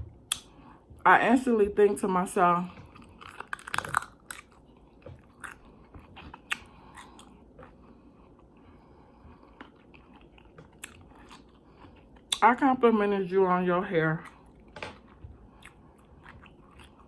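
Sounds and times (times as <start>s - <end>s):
person chewing and biting food: 0.1s - 0.7s, 2.7s - 12.4s, 14.2s - 17.0s.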